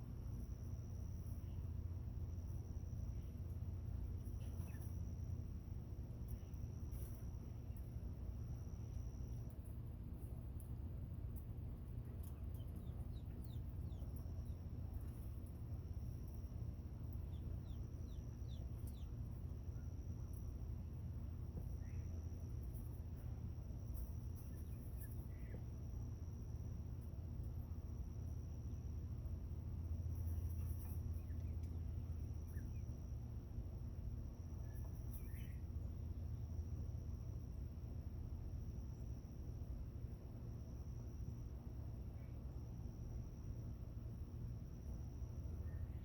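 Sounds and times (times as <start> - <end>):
steady low rumble: 0.0 - 46.0
quail chicks peeping: 0.1 - 25.8, 29.6 - 33.3, 34.4 - 36.3.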